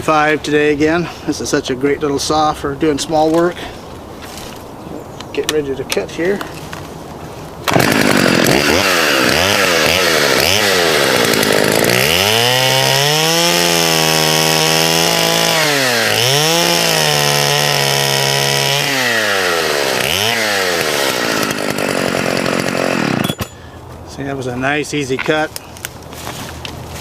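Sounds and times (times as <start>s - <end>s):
chainsaw revving and cutting log: 7.6s - 23.6s.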